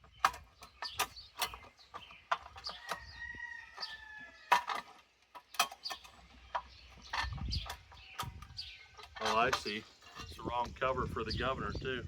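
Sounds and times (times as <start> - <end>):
metal parts clicking and clanking: 0.0 - 10.8
rooster crowing: 2.8 - 4.5.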